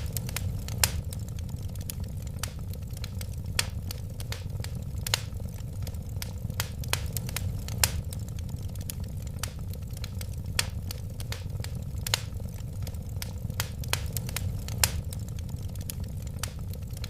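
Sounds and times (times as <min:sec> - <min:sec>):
burning wood crackling and popping: 0:00.0 - 0:17.0
wood fire roaring: 0:00.0 - 0:17.0.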